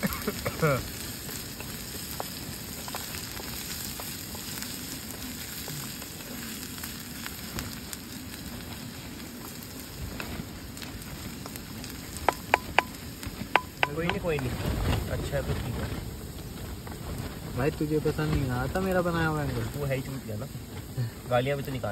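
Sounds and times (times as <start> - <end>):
onions sizzling in oil: 0.0 - 21.9
wooden spatula stirring: 0.3 - 7.0, 11.4 - 15.2.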